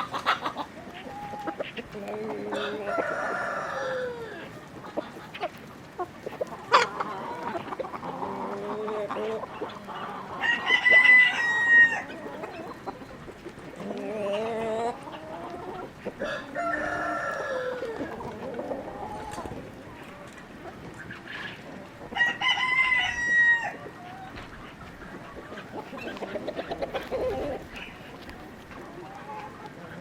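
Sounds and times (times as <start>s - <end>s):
chickens clucking: 0.0s - 30.0s
rooster crowing: 2.5s - 4.4s, 10.4s - 12.1s, 16.2s - 18.1s, 22.2s - 23.8s.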